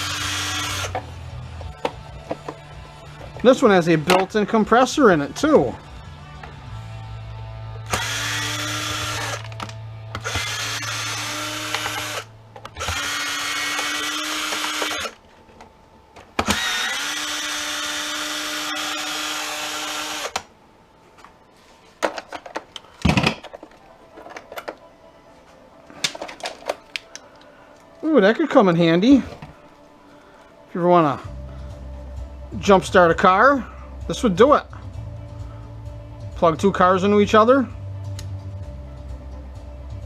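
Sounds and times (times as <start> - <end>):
parts and screws clicking: 0.0 - 1.1, 7.9 - 15.7, 16.3 - 20.5
power driver backing out screws: 0.0 - 1.1, 7.9 - 15.2, 16.4 - 20.4.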